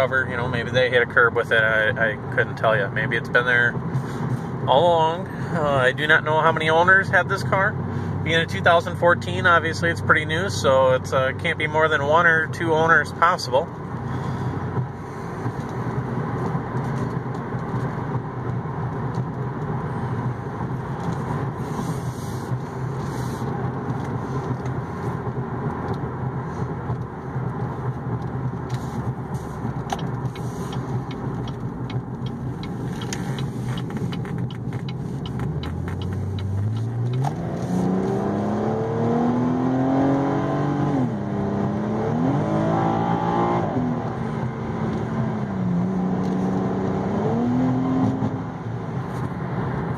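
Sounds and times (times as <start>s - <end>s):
road noise: 0.0s - 49.9s
car engine accelerating: 12.9s - 49.9s.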